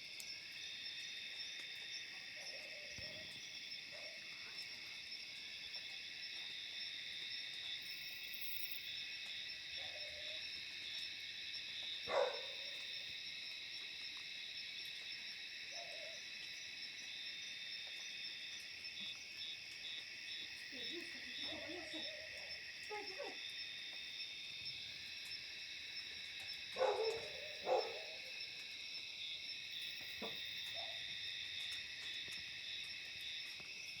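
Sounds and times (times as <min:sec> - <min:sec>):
night insects chorus: 0:00.0 - 0:34.0.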